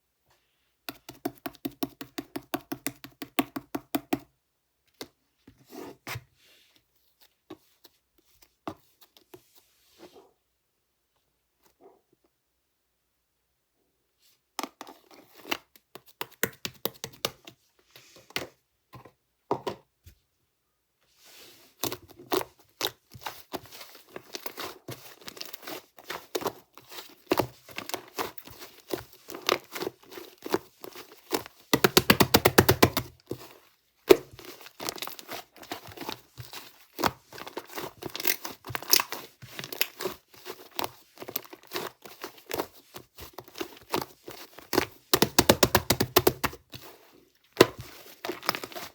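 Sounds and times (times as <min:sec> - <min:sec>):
slime squishing with sticky pops: 0:34.0 - 0:46.6.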